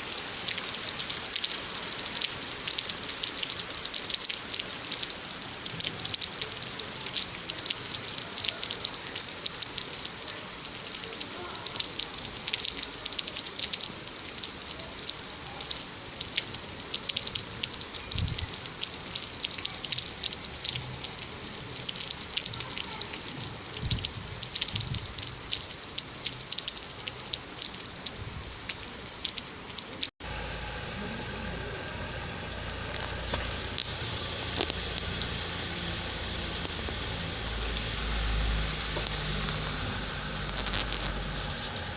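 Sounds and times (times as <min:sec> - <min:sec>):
rain falling: 0:00.0 - 0:41.9
low rumble: 0:30.2 - 0:41.9.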